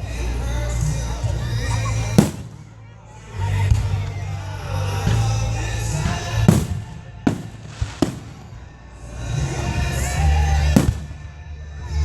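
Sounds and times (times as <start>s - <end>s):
fireworks bangs: 1.3s - 2.9s, 5.1s - 11.3s.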